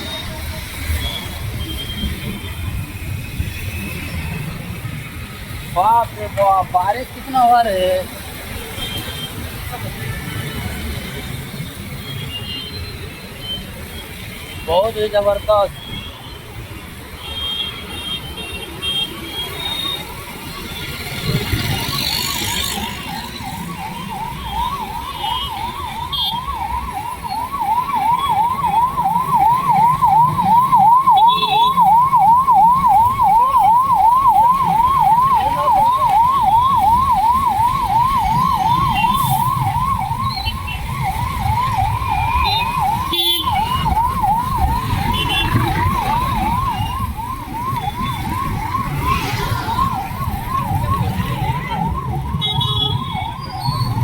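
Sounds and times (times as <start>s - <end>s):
electronic siren yelping: 19.2s - 54.0s.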